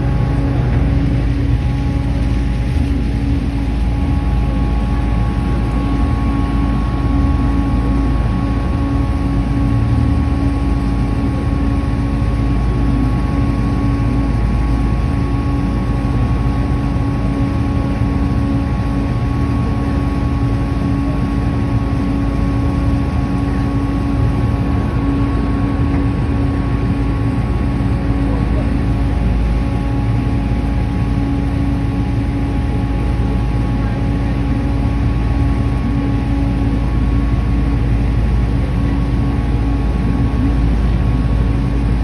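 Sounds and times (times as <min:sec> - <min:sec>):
boat engine droning: 0:00.0 - 0:42.0.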